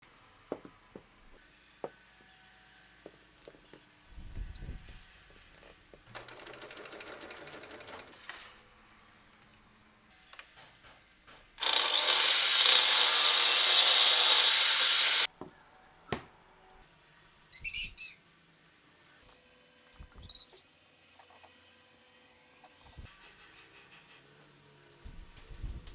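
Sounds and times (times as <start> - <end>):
power tool cutting wood: 11.6 - 15.3.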